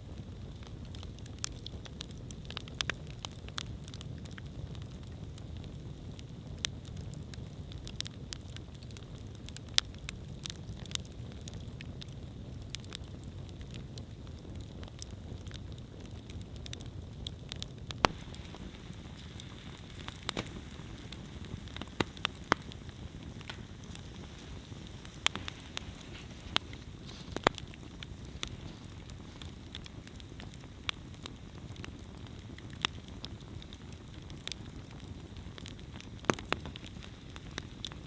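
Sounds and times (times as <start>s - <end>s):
fire crackles and pops: 0.0s - 38.0s
campfire flame rushing: 0.2s - 38.0s.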